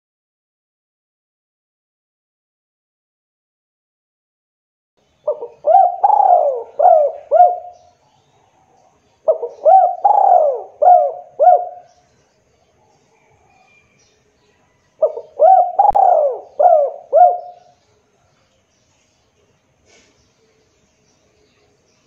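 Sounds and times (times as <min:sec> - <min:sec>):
dove cooing: 0:05.3 - 0:07.9, 0:09.2 - 0:11.9, 0:15.0 - 0:17.8.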